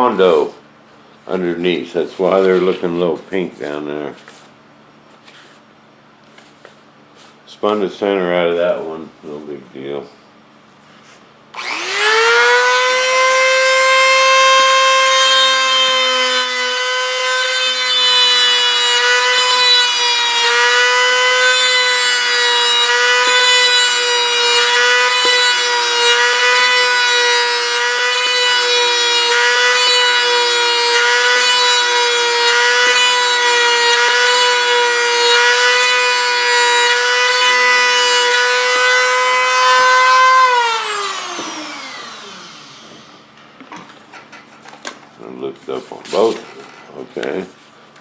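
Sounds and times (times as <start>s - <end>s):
rotary tool high whine: 11.5s - 19.6s, 20.2s - 43.4s
rotary tool winding down: 11.6s - 12.7s, 40.4s - 43.2s.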